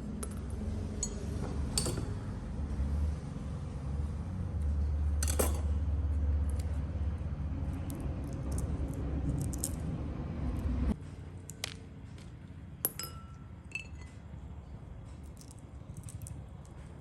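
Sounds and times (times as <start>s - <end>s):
low rumbling noise: 0.0s - 11.4s
sharp ringing clink: 12.8s - 14.2s.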